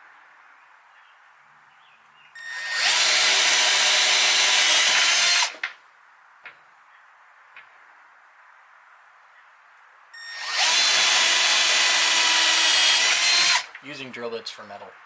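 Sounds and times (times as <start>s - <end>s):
power drill boring into wood: 2.4s - 5.6s, 10.2s - 13.8s.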